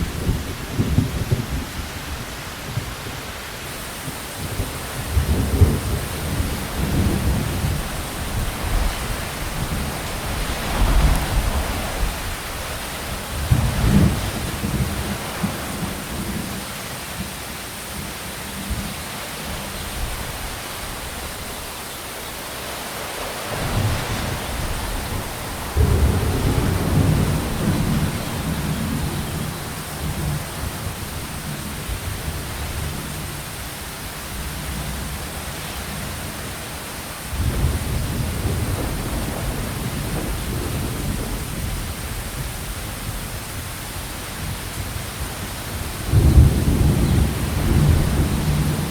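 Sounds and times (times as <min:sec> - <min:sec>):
rain hiss: 0:00.0 - 0:48.9
thunder rumbling: 0:03.7 - 0:16.7, 0:23.5 - 0:36.4, 0:37.3 - 0:43.4, 0:44.4 - 0:48.9.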